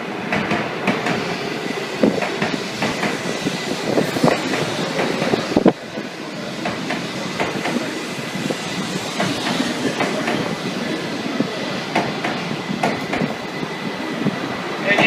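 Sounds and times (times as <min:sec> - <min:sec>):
train rolling slowly: 0:00.0 - 0:15.0
wheels clicking over rail joints: 0:02.0 - 0:13.4.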